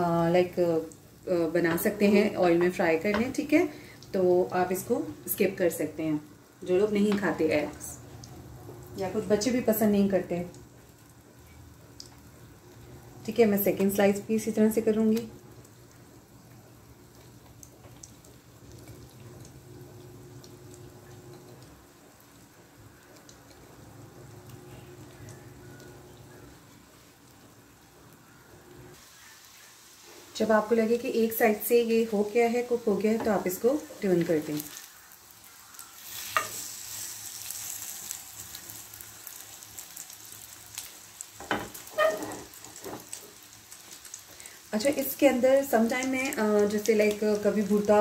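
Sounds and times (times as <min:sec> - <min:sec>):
low steady hum: 0:00.0 - 0:29.0
bread frying in hot oil: 0:00.0 - 0:48.0.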